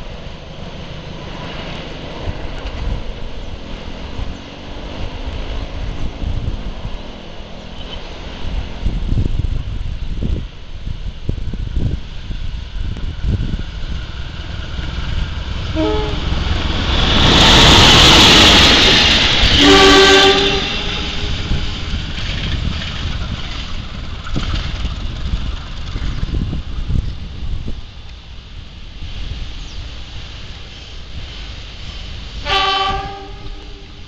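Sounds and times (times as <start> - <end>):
train passing: 0.0 - 34.0
train horn: 15.7 - 16.5, 19.4 - 21.8, 32.4 - 34.0
wheels clattering over rails: 16.4 - 27.3.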